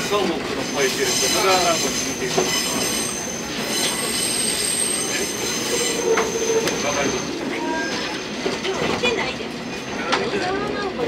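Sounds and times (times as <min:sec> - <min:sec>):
train wheels running on rails: 0:00.0 - 0:11.0
high wheel squeal: 0:00.5 - 0:08.9.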